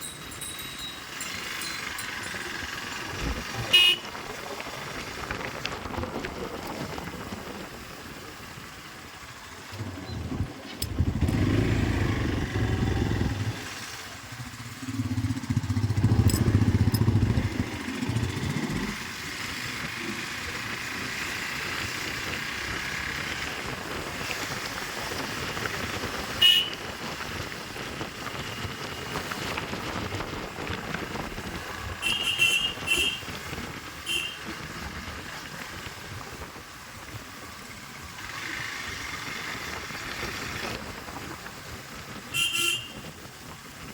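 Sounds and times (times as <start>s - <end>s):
motorcycle engine rumble: 0.0s - 43.9s
motorcycle horn beeps: 3.6s - 4.2s, 26.4s - 26.8s, 32.0s - 33.4s, 34.0s - 34.5s, 42.3s - 43.2s.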